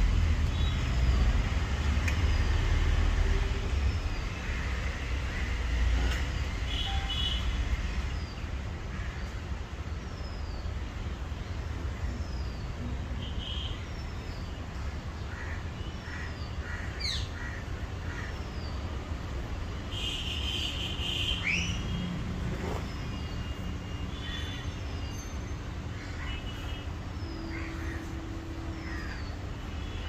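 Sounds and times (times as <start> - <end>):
birds chirping: 19.9 - 30.0.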